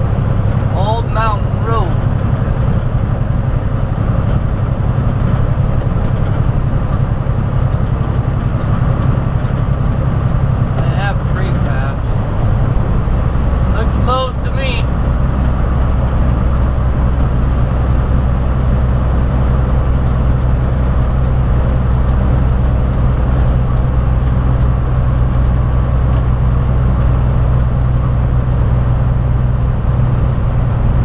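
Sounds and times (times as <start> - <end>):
road noise: 0.0 - 31.0
truck diesel engine drone: 0.0 - 31.0.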